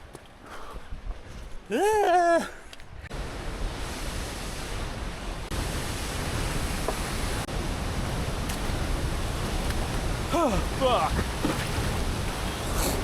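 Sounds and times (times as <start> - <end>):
waterfall rushing: 3.2 - 13.0.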